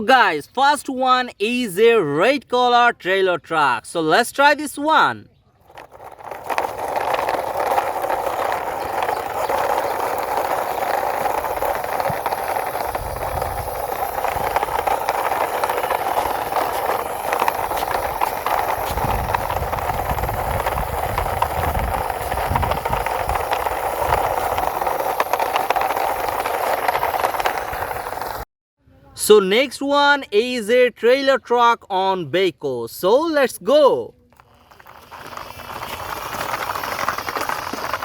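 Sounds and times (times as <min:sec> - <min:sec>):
toy truck wheels rattling: 0:05.6 - 0:28.5, 0:33.4 - 0:38.0.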